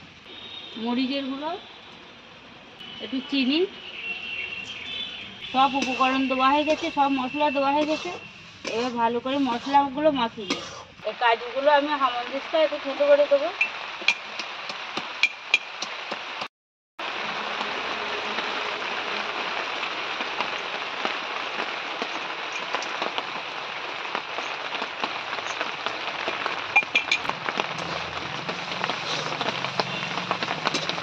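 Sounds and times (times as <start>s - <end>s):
filling sizzling and crackling: 2.8s - 31.0s
metal spatula scraping and clinking: 5.7s - 7.0s, 7.8s - 9.9s, 28.9s - 29.4s.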